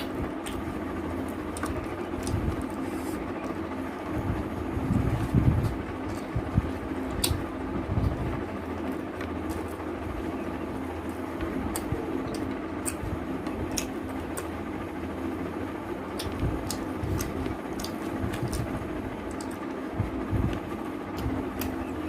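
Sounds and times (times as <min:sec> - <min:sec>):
steady hum: 0:00.0 - 0:22.0
wet chewing mouth clicks: 0:07.1 - 0:07.4, 0:11.7 - 0:13.1, 0:16.1 - 0:18.7.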